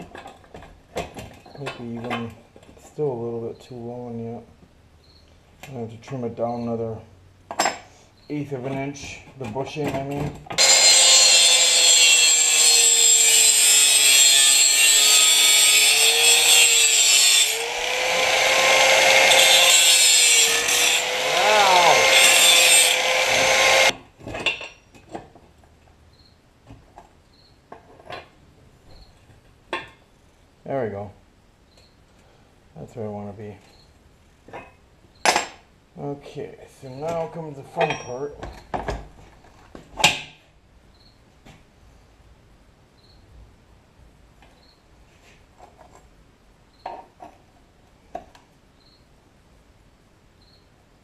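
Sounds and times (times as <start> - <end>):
faint high chirp: 5.0 - 5.4, 48.8 - 49.1, 50.4 - 50.7
power tool grinding metal: 10.6 - 24.0.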